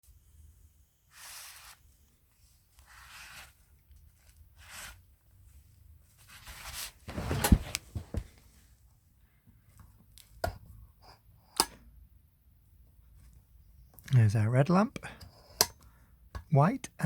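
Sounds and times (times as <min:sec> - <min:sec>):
lamp rustling swishes: 0:06.2 - 0:08.6.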